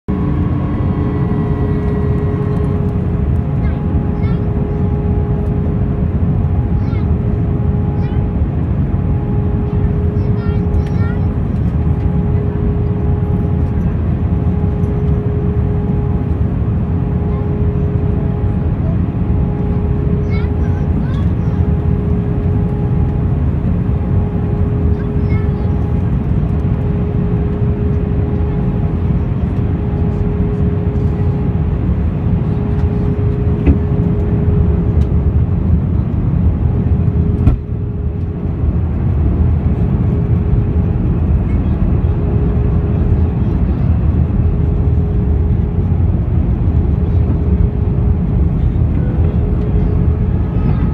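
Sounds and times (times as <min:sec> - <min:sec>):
thin steady hum: 0:00.1 - 0:26.3
aircraft cabin engine rumble: 0:00.1 - 0:50.9.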